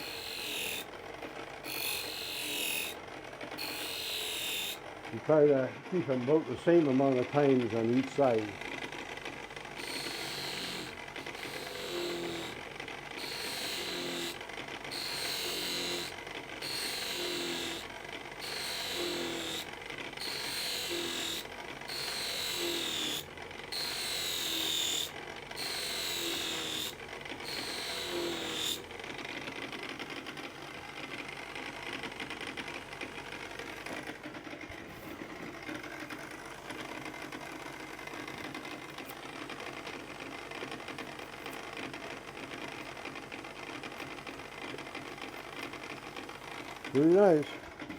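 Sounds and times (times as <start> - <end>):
knife blade on honing wheel: 0.0 - 0.9, 1.6 - 3.0, 3.6 - 4.8, 9.6 - 28.9
electric motor turning wheel: 0.0 - 47.9.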